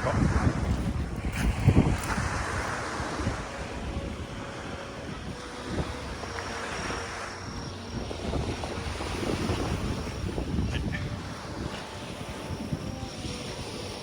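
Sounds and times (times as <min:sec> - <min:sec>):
waves washing onto beach: 0:00.0 - 0:14.0
wind buffeting microphone: 0:00.0 - 0:14.0.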